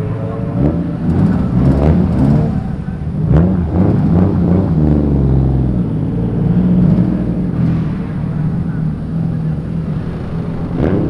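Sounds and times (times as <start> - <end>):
car engines revving: 0.0 - 11.0
steady low rumble: 0.0 - 11.0.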